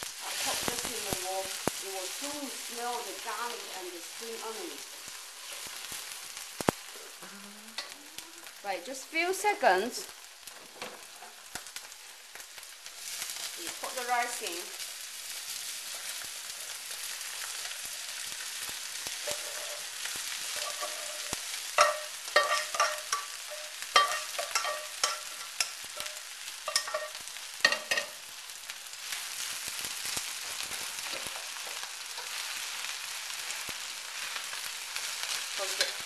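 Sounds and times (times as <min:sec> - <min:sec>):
rice sizzling in a wok: 0:00.0 - 0:36.0
utensil knocking and scraping wok: 0:19.1 - 0:28.2, 0:35.6 - 0:36.0.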